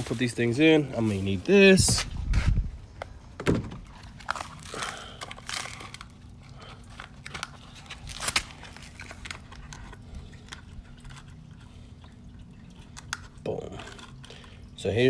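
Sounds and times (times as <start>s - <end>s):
packaging crinkling and rustling: 0.0s - 2.5s, 3.8s - 11.3s.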